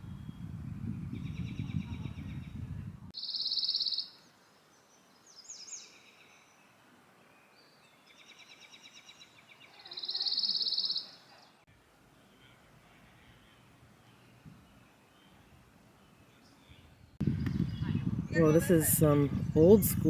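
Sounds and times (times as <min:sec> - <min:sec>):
wind rumble on microphone: 0:00.0 - 0:03.1, 0:16.7 - 0:20.0
songbirds singing: 0:00.0 - 0:20.0
buzzy bird trill: 0:03.2 - 0:04.2, 0:08.2 - 0:11.3.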